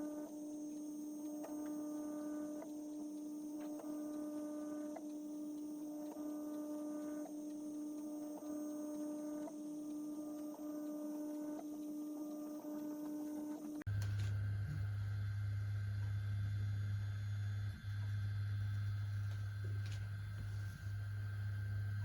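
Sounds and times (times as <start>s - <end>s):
printer stepper motors humming: 0.0s - 22.0s
faint tick: 2.6s - 12.4s.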